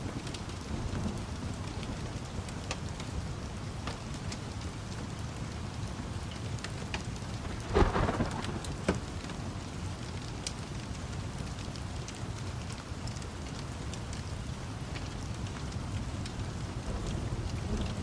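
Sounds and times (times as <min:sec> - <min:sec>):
small crackles: 0:00.0 - 0:18.0
steady rain: 0:00.0 - 0:18.0
thunder clap: 0:07.3 - 0:09.8.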